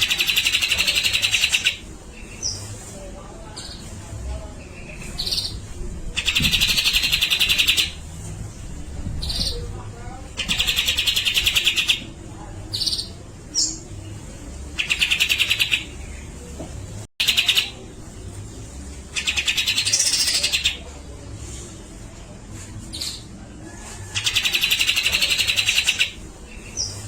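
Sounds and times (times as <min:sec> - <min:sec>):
bird harsh rattling chatter: 0:00.0 - 0:01.8, 0:06.2 - 0:08.0, 0:10.4 - 0:12.0.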